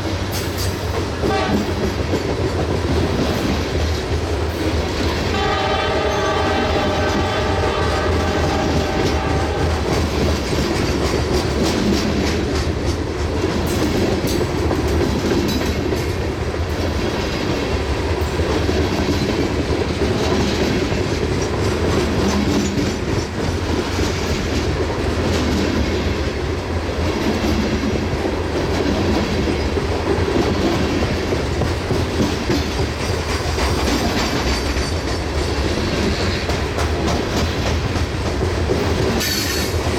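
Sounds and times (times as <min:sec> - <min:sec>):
freight train wheels clacking: 0:00.0 - 0:39.9
train horn: 0:01.2 - 0:01.8, 0:05.3 - 0:10.2.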